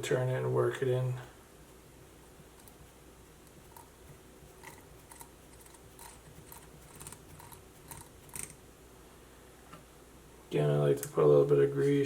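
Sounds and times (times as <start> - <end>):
gears clicking and ticking: 4.6 - 8.6.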